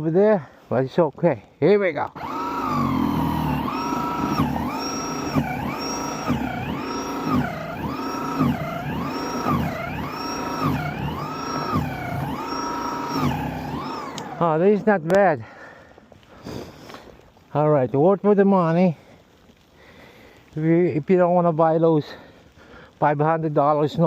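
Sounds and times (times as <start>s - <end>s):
snow thrower motor whining: 2.0s - 15.3s.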